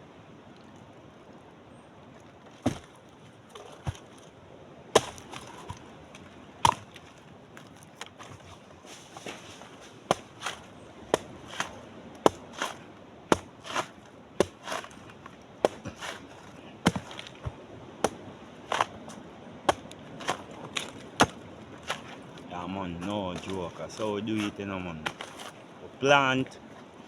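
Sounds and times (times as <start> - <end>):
hand tool chopping: 2.6 - 2.9, 3.6 - 4.1, 5.0 - 5.8, 6.6 - 7.0, 10.1 - 19.1, 19.7 - 22.3, 23.0 - 25.6.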